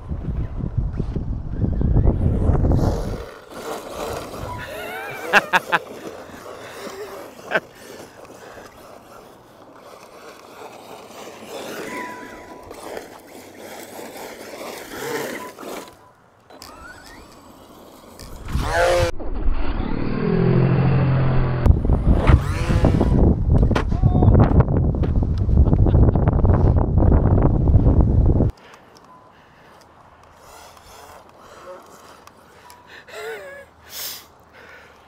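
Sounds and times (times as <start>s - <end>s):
tyres on gravel: 2.8s - 19.0s
electric motor whine: 16.5s - 23.2s.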